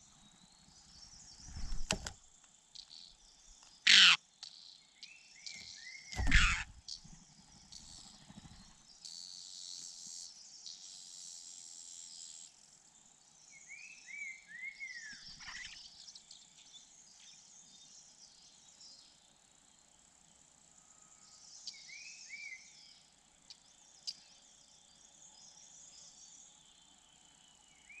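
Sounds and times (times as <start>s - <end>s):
high insect hiss: 0.0s - 28.0s
bird calling: 3.9s - 4.2s, 6.1s - 6.9s
loud thump: 6.2s - 6.6s.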